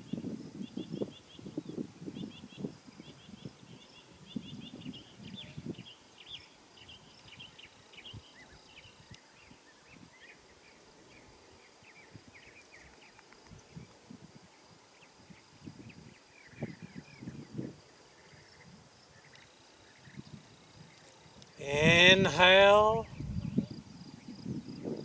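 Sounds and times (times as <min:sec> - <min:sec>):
small birds chirping: 0:00.0 - 0:22.2.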